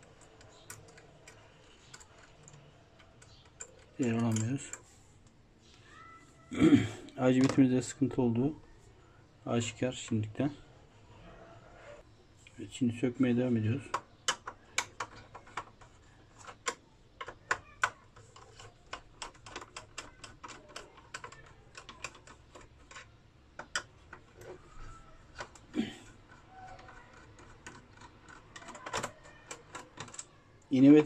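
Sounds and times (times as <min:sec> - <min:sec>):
clicks and taps of parts handled: 0:13.8 - 0:30.3.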